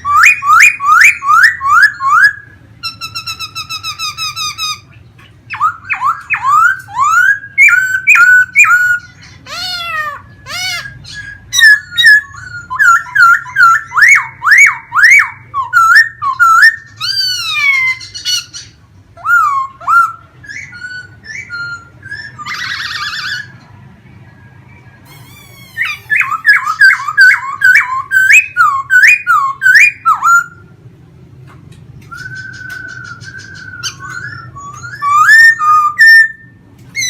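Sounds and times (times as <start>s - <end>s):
bird singing whistled phrases: 0.0s - 23.5s, 25.0s - 30.7s, 32.0s - 37.0s
harsh rasping bird call: 0.0s - 23.6s, 25.0s - 30.7s.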